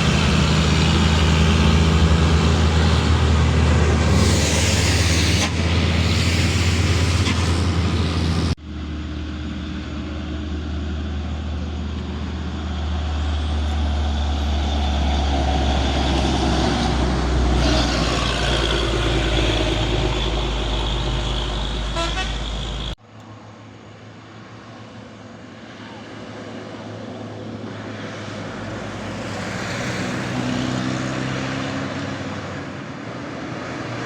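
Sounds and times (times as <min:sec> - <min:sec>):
heavy truck engine running: 0:00.0 - 0:23.0
air hiss: 0:04.0 - 0:07.6.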